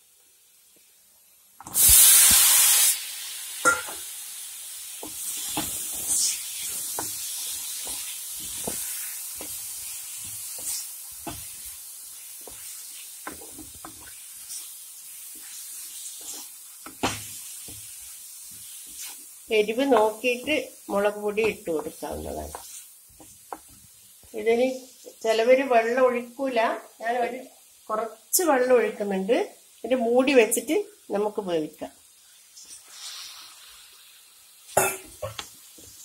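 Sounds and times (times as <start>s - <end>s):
food sizzling in hot oil: 0.0s - 36.0s
spatula knocking: 6.8s - 11.7s, 16.2s - 19.1s, 21.4s - 23.9s
wooden spatula scraping pan: 15.3s - 19.3s, 21.4s - 23.8s.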